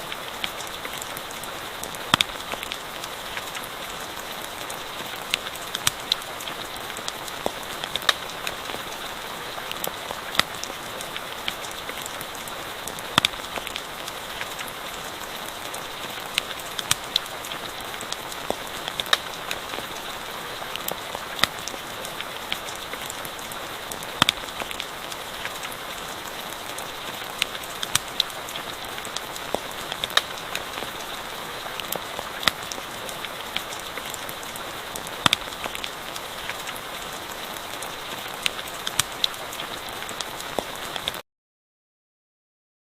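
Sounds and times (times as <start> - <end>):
rain hissing: 0.0 - 41.2
campfire crackles and pops: 0.1 - 41.2.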